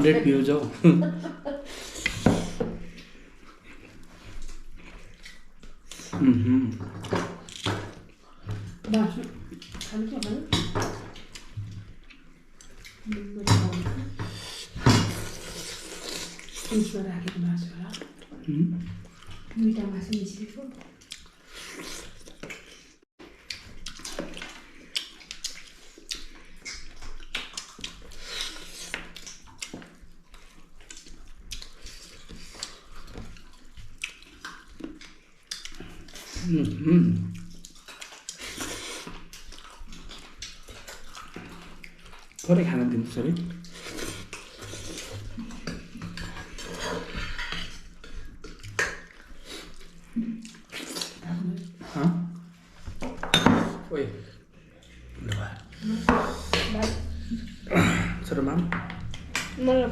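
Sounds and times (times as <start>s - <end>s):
wet chewing and mouth smacking: 1.6s - 13.4s, 14.3s - 53.2s, 54.3s - 59.6s.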